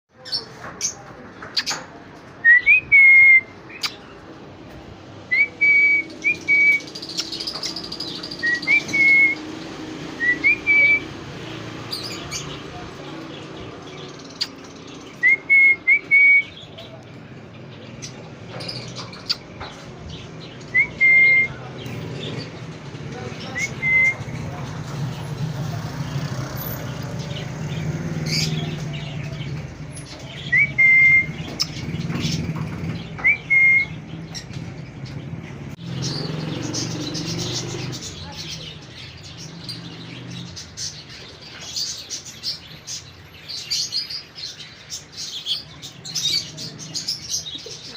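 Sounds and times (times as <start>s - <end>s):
bird whistled call: 5.3s - 7.3s, 8.4s - 9.4s, 10.2s - 11.1s, 15.2s - 16.6s, 20.7s - 21.6s, 30.5s - 31.4s, 33.2s - 34.0s.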